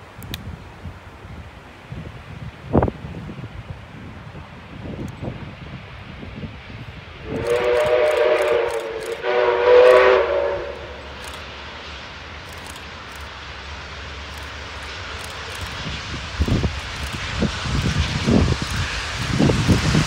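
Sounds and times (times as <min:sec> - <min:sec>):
faint low train rumble: 0:00.0 - 0:20.0
steam locomotive whistle blasts: 0:07.2 - 0:11.4.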